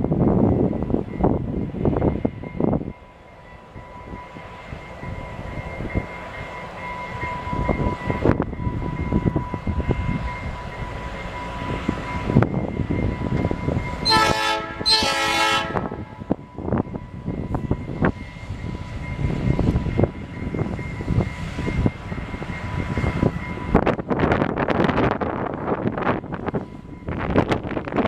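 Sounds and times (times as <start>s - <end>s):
train rolling by: 0.0s - 28.0s
train air horn blasts: 14.0s - 16.2s.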